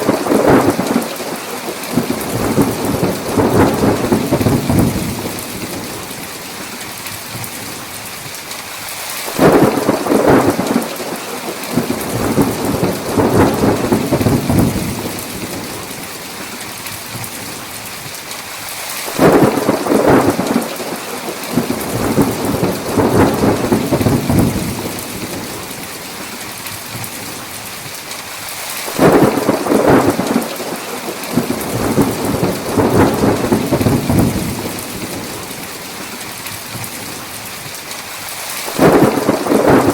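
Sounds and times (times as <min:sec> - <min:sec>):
thunder rumbling: 0:00.0 - 0:06.7, 0:09.4 - 0:16.2, 0:19.2 - 0:26.4, 0:28.9 - 0:36.2, 0:38.7 - 0:39.9
heavy rain: 0:00.0 - 0:39.9.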